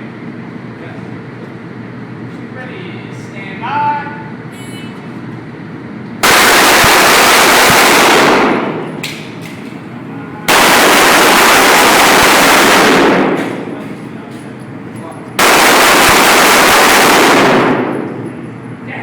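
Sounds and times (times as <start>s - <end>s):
pistol firing full auto bursts: 6.2s - 9.0s, 10.5s - 13.8s, 15.4s - 18.2s.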